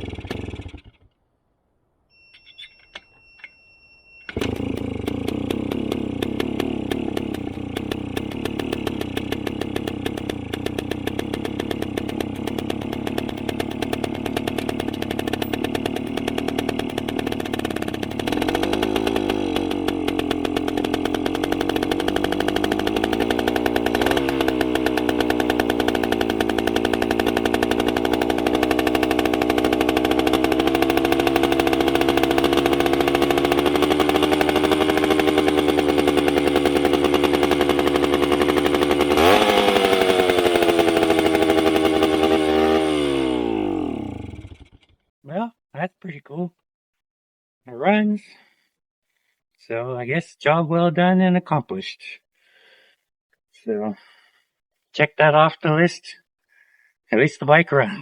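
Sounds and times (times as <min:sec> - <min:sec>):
two-stroke engine idling and revving: 0:00.0 - 0:01.1, 0:04.3 - 0:45.0.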